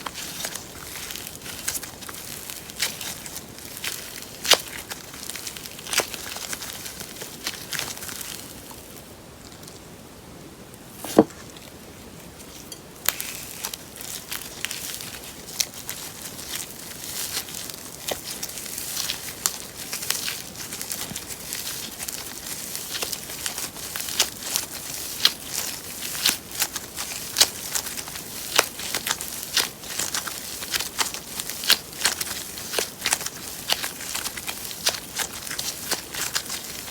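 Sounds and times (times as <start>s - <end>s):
sharp knock: 11.0s - 11.3s.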